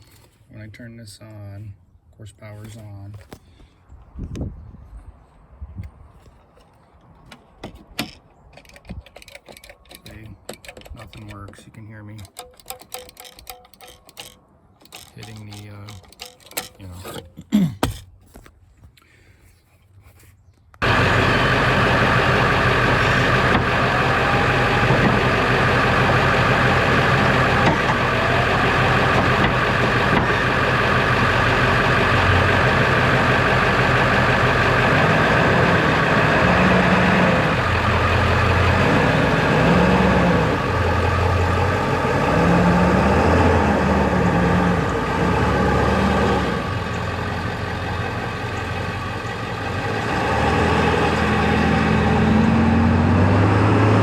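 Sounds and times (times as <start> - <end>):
pickup truck engine running: 20.8 - 54.0.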